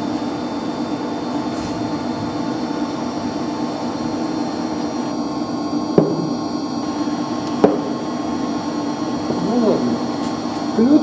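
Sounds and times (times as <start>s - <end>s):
circulation pumps humming: 0.0s - 11.0s.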